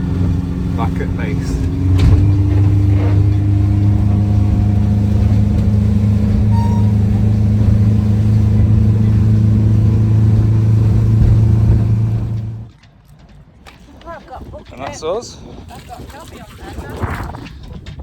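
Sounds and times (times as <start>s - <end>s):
boat engine running: 0.0s - 12.7s.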